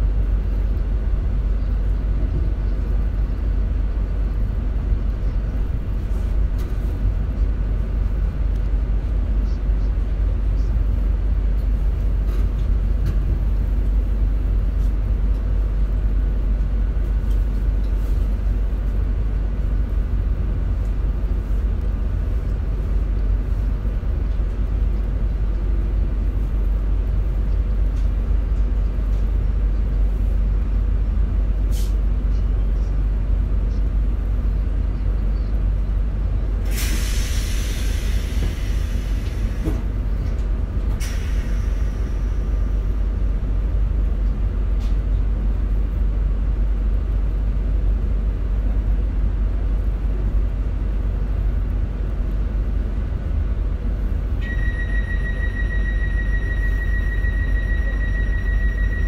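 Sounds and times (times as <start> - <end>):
train rumbling: 0.0 - 59.0
air brakes hissing: 31.7 - 32.0, 36.6 - 39.9, 40.9 - 42.8.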